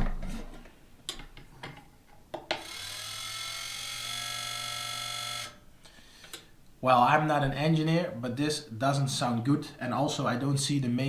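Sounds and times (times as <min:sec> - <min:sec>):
electric motor gearbox whining: 0:02.6 - 0:05.6.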